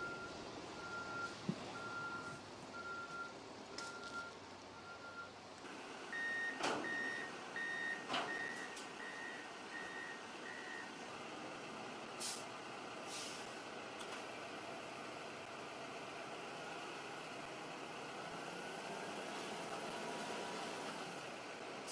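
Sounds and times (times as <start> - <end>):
vehicle reversing alarm beeping: 0.0 - 5.4, 6.1 - 11.0
short hisses: 12.2 - 12.4.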